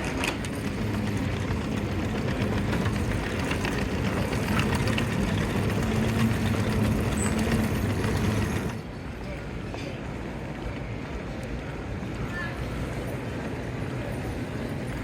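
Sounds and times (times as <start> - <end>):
vehicle engine rumbling: 0.0 - 9.0.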